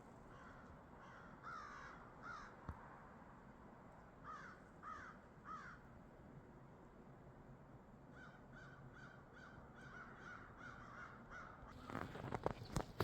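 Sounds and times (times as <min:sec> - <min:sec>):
crows cawing faintly: 0:00.3 - 0:02.8, 0:04.2 - 0:05.9, 0:08.1 - 0:12.4.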